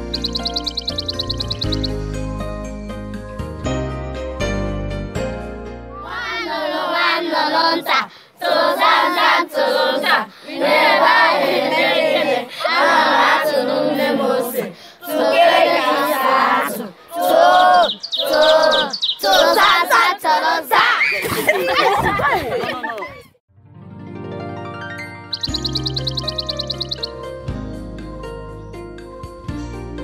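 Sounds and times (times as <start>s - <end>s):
children singing together: 6.0s - 21.0s.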